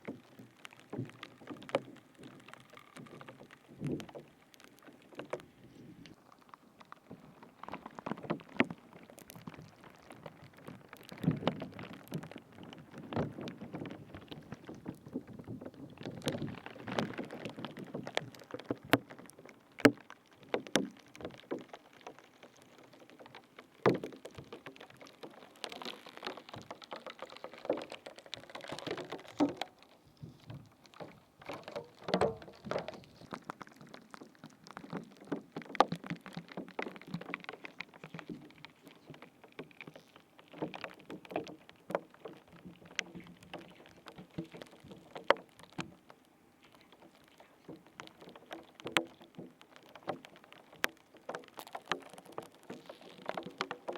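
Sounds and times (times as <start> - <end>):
wet squishes and crackles: 0.0 - 53.9.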